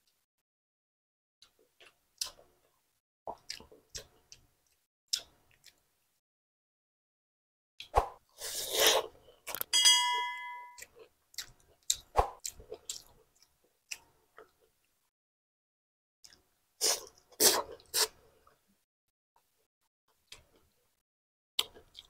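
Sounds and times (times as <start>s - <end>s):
chewing and mouth smacking: 1.4s - 2.7s, 3.3s - 5.9s, 10.8s - 15.0s, 21.6s - 22.0s
short ringing clink: 9.7s - 10.8s.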